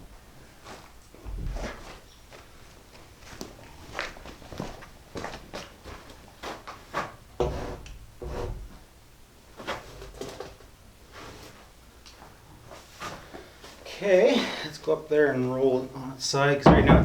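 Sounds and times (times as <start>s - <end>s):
knocks and scuffs of working: 0.6s - 8.8s, 16.6s - 17.0s
heavy thuds: 16.6s - 17.0s.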